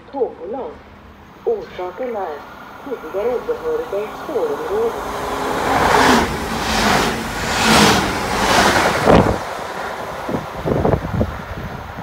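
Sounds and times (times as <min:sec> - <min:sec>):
train rushing past: 0:01.1 - 0:12.0
wind buffeting microphone: 0:05.4 - 0:12.0.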